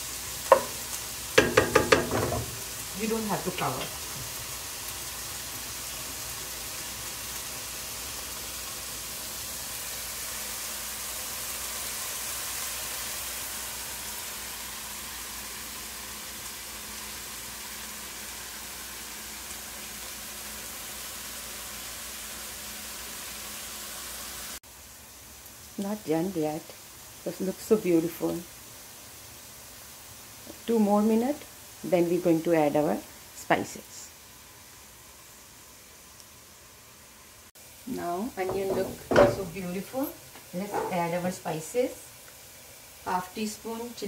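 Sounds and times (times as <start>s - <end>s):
onion sizzling in hot oil: 0.0s - 44.0s.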